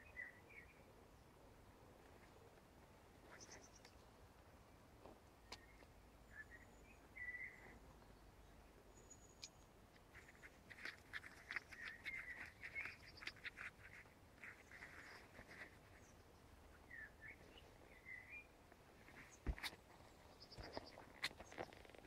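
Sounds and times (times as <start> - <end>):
birds chirping and trilling: 5.5 - 21.8.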